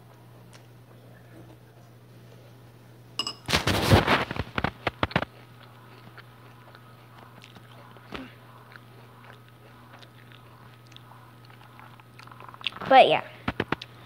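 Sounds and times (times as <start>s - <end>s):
crunchy food chewed: 3.5s - 12.9s.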